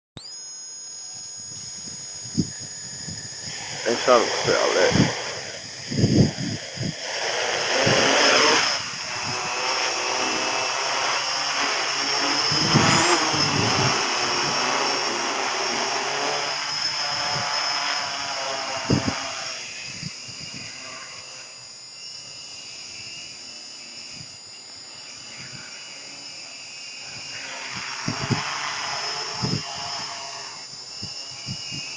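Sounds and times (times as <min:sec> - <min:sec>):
drone motors whining: 0:00.2 - 0:31.9
wind buffeting microphone: 0:01.5 - 0:11.0, 0:12.2 - 0:15.5, 0:18.6 - 0:20.9, 0:27.0 - 0:31.9.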